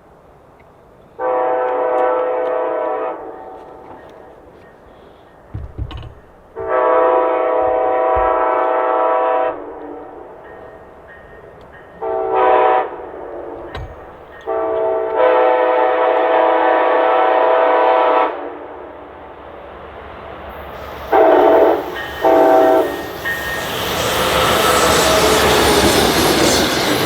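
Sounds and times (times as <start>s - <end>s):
train rumble: 0.0s - 27.0s
locomotive air horn blasts: 1.2s - 3.8s, 6.6s - 10.0s, 12.0s - 13.5s, 14.4s - 18.6s, 20.8s - 26.6s.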